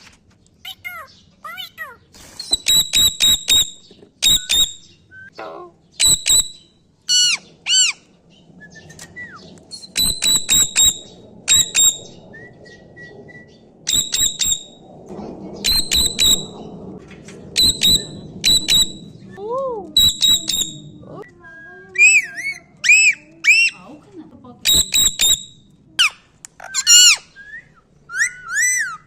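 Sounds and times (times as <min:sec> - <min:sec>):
parrot calling: 0:00.6 - 0:08.2, 0:09.7 - 0:12.2, 0:15.7 - 0:16.6, 0:17.6 - 0:19.0, 0:22.0 - 0:23.9, 0:24.6 - 0:29.0
parrot whistling: 0:00.7 - 0:05.4, 0:06.0 - 0:08.0, 0:08.7 - 0:14.8, 0:15.7 - 0:16.6, 0:17.6 - 0:19.1, 0:20.0 - 0:23.9, 0:24.6 - 0:29.0.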